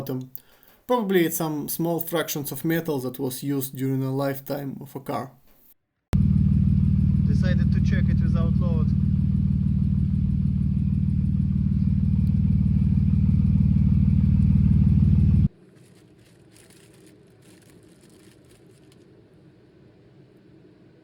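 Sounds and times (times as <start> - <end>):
car engine humming: 6.2 - 15.5.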